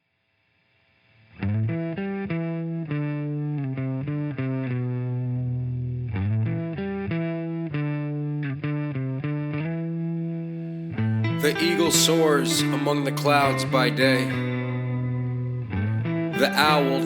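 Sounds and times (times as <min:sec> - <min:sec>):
distorted electric guitar melody: 0:01.3 - 0:17.0.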